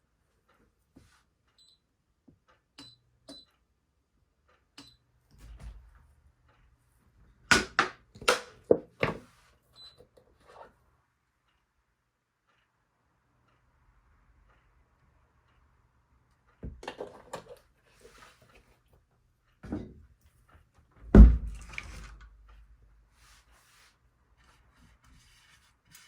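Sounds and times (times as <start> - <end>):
loud knocks: 21.1 - 21.7.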